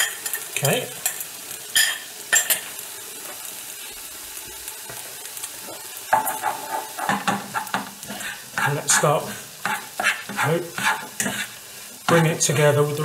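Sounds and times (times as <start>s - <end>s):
wok of rice sizzling: 0.0s - 13.0s.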